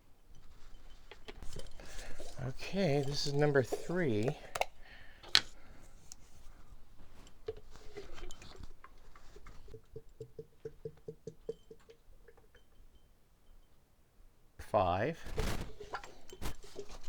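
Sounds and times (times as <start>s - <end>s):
oil glugging out of a bottle: 0.8s - 12.6s, 15.7s - 17.0s.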